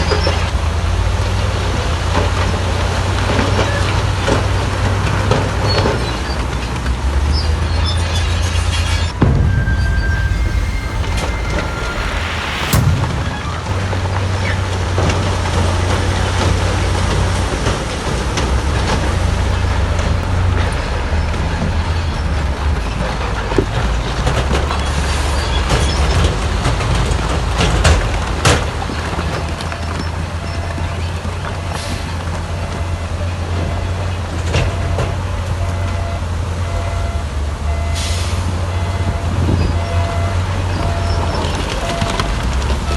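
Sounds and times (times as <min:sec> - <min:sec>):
heavy diesel machinery running: 0:00.0 - 0:42.9
sharp metal clanks: 0:09.2 - 0:14.3.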